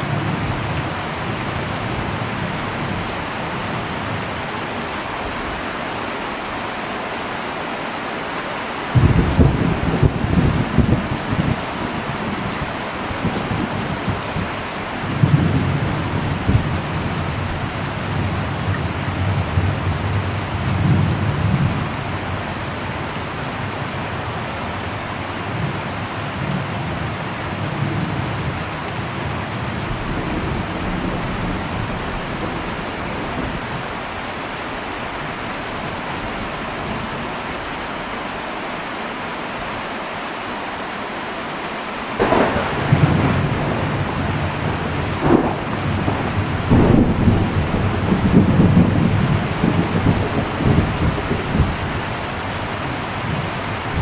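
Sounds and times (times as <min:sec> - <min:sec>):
heavy rain on metal roof: 0:00.0 - 0:54.0
thunder rumbling: 0:08.9 - 0:23.3, 0:42.2 - 0:54.0.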